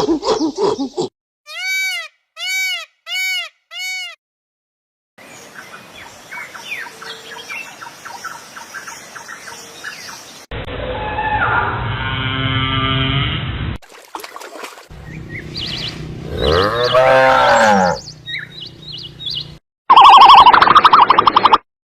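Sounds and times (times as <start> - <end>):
hissy outdoor background: 5.2 - 10.5.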